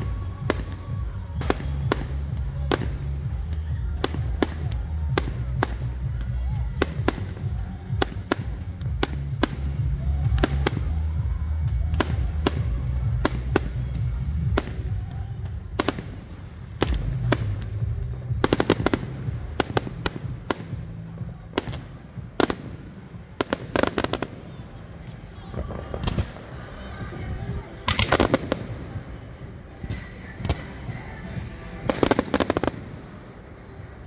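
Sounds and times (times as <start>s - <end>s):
low rumble: 0.0s - 23.4s
fireworks bangs: 0.0s - 30.9s, 31.8s - 34.0s
rapid crackling fireworks: 0.0s - 34.0s.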